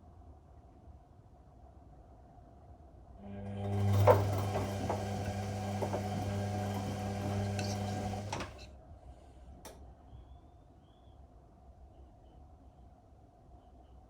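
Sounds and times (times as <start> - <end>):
washing machine drum motor humming: 3.2 - 8.7.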